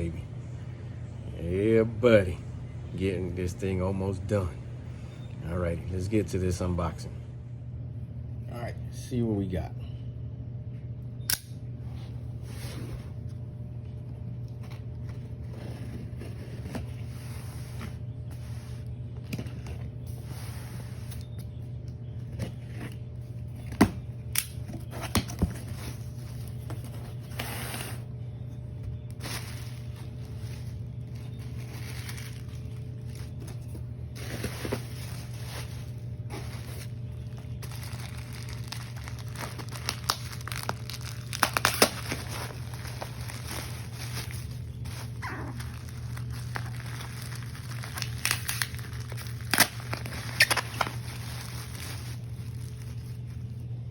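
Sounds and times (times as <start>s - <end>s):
steady low hum: 0.0s - 53.9s
packing material rustling: 28.8s - 53.9s
tape and cardboard tearing: 38.7s - 42.3s, 46.6s - 51.8s.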